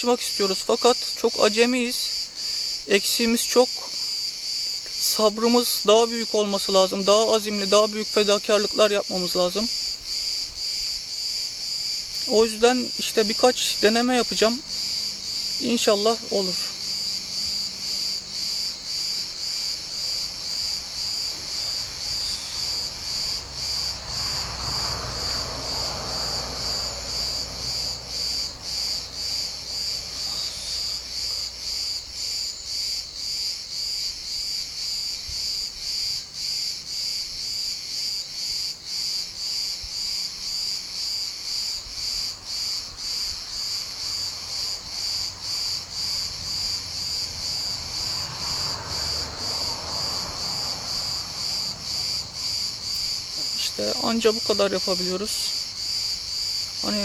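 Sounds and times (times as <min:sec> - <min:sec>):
insects shrilling: 0:00.0 - 0:37.2.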